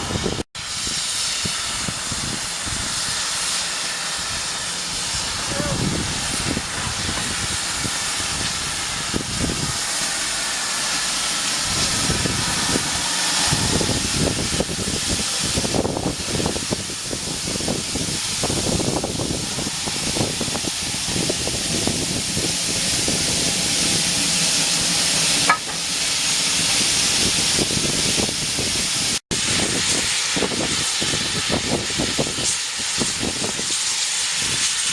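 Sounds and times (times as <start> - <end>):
steam locomotive hissing: 0.0 - 34.9
low rumbling: 11.1 - 29.1.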